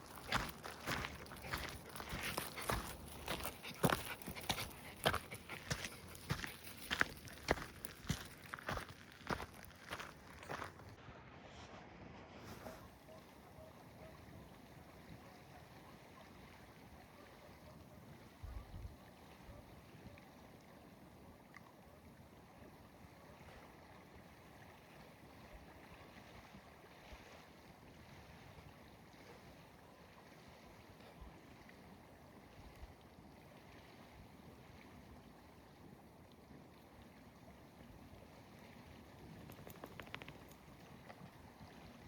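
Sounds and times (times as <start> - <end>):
faint outdoor hiss: 35.0 - 42.0.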